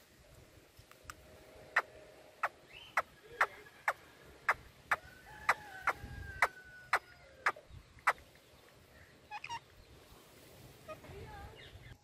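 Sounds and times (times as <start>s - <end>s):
birds clicking calls: 1.8s - 9.9s.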